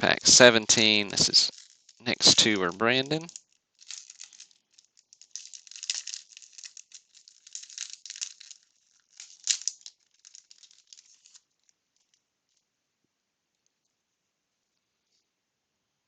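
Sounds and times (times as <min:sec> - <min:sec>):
wax paper wrapper crinkling: 0:00.1 - 0:12.6.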